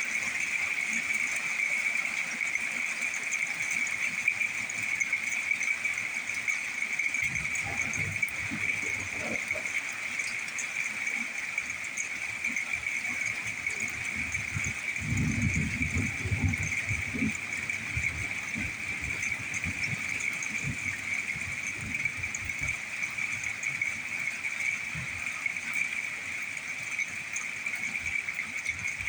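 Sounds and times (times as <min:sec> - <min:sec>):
low rumbling thunder: 0:14.1 - 0:22.8.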